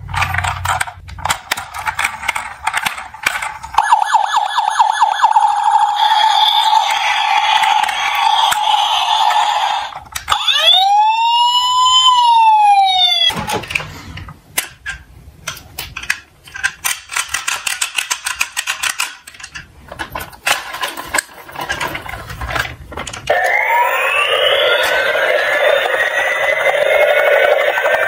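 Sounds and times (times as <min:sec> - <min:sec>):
toy cars rolling and rattling: 0:00.0 - 0:03.8, 0:05.2 - 0:10.4, 0:14.6 - 0:28.0
siren wailing: 0:03.8 - 0:13.3, 0:23.3 - 0:28.0.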